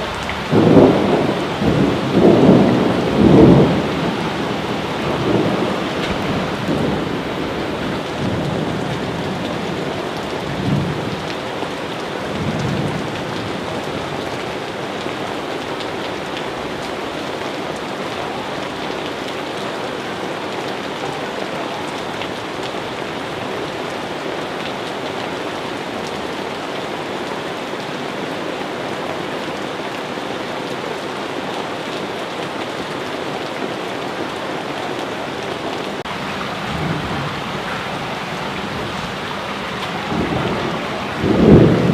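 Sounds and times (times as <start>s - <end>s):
thunder rumbling: 0.0s - 11.3s, 35.9s - 41.9s
heavy rain falling: 0.0s - 41.9s.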